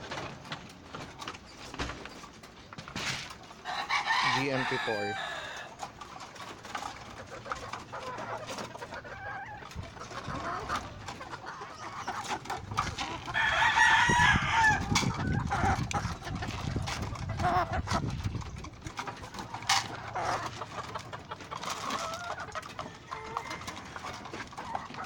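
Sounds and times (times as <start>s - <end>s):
hens clucking: 0.0s - 25.0s
roosters crowing: 3.5s - 6.1s, 10.3s - 18.0s, 21.7s - 25.0s.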